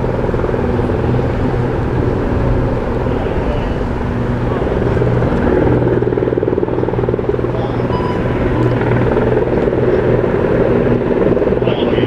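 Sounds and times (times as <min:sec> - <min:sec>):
helicopter rotor chop: 0:00.0 - 0:12.0.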